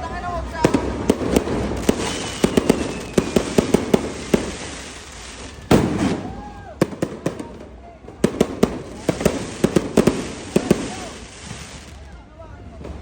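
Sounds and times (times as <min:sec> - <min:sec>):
fireworks bangs: 0:00.0 - 0:13.0
fireworks crackling: 0:00.0 - 0:13.0
faint falling whistle: 0:02.0 - 0:03.4.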